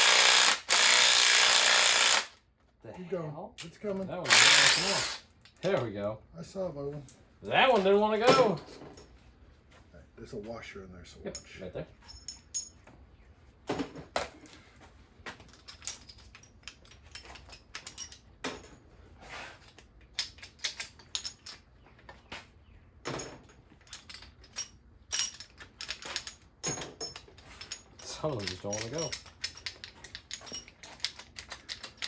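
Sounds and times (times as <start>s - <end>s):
tools and bolts clinking on metal: 3.5s - 6.2s, 6.8s - 9.2s, 11.1s - 13.0s, 13.7s - 32.0s.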